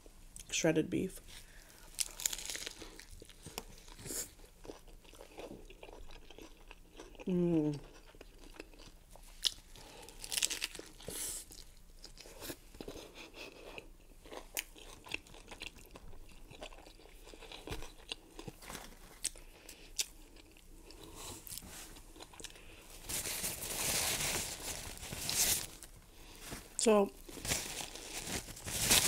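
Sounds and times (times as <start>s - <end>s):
crunchy taco chewing: 1.6s - 26.4s, 27.2s - 29.0s
rustling noise: 23.0s - 29.0s.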